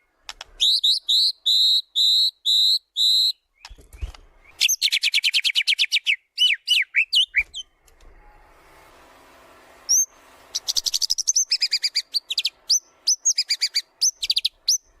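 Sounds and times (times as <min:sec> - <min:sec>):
bird singing whistled notes: 0:00.0 - 0:07.7, 0:09.9 - 0:15.0
bird fast rattling trill: 0:09.9 - 0:15.0.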